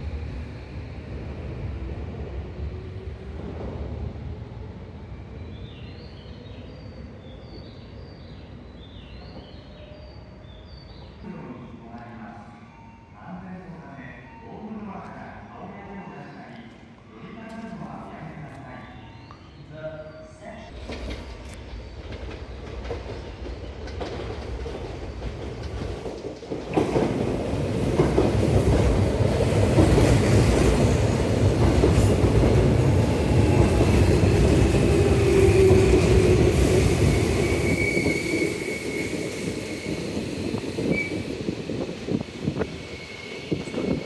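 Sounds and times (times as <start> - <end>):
train rumble and wheel clatter: 0.0 - 11.3, 20.6 - 44.0
high wheel squeal: 36.8 - 44.0.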